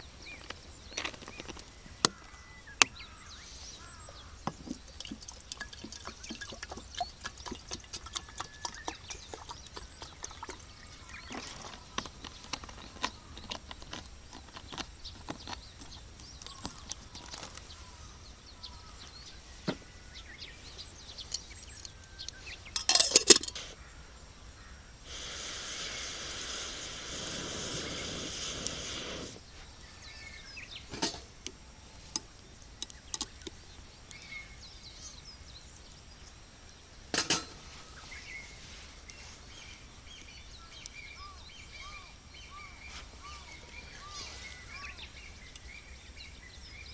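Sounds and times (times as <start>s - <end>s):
steady rushing hiss: 0.0s - 7.7s, 15.6s - 46.4s
bird chirping: 0.0s - 37.0s, 37.6s - 46.9s
campfire crackling and popping: 0.3s - 18.2s, 25.1s - 29.5s, 30.7s - 34.4s.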